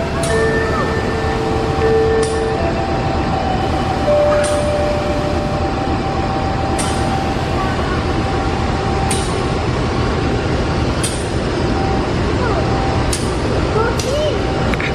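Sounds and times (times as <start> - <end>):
thin steady whine: 0.0 - 14.9
train rumble: 0.0 - 14.9
sharp metallic click: 9.1 - 9.4.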